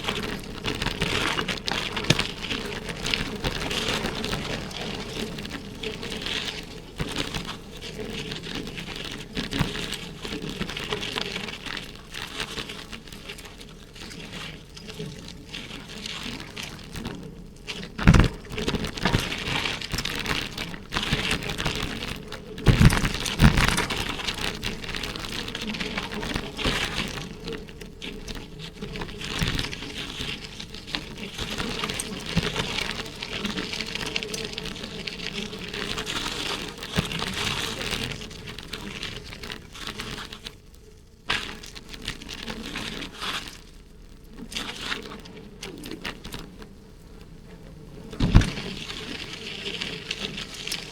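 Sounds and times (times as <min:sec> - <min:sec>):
wind on microphone: 0:00.0 - 0:11.7
bicycle rattling and rumble: 0:00.0 - 0:50.9.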